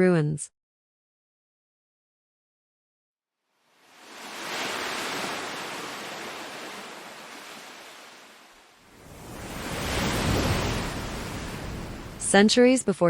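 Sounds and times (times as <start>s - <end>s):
sea waves surging and washing: 3.5s - 12.9s.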